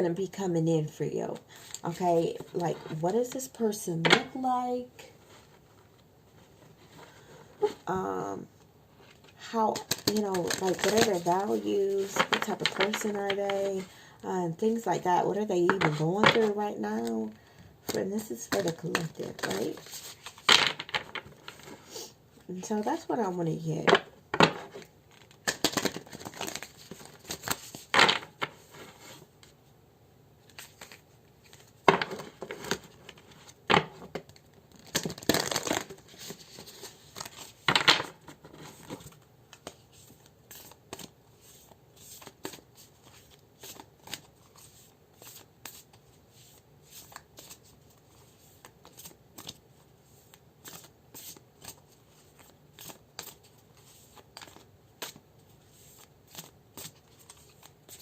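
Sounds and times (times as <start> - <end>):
cards being shuffled: 9.1 - 13.8, 24.5 - 29.6, 30.4 - 33.6, 34.2 - 58.0.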